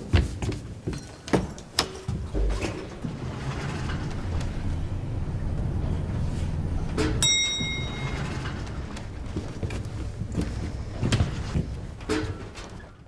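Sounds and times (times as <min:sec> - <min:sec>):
knocks and thumps: 0:00.0 - 0:05.8
vehicle engine idling: 0:01.6 - 0:12.0
metallic strike ringing: 0:07.2 - 0:08.4.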